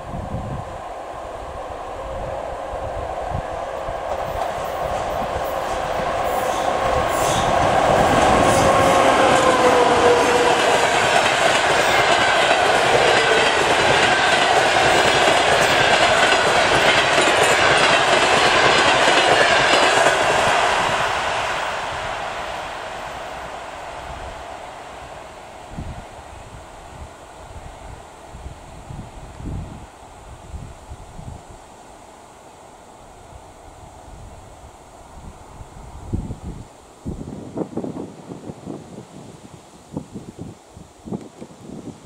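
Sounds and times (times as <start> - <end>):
train coaches rumbling: 0.0 - 29.8
wheels clicking over rail joints: 4.1 - 20.6.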